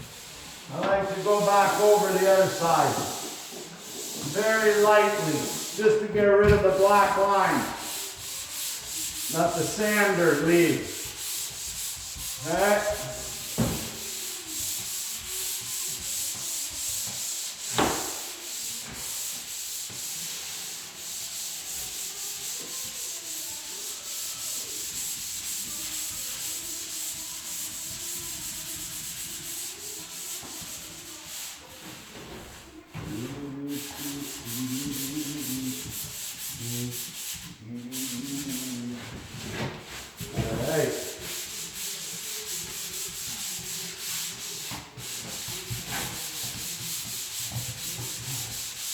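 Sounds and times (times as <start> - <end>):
sanding pad rubbing drywall: 0.0 - 48.9
knock: 17.7 - 18.2.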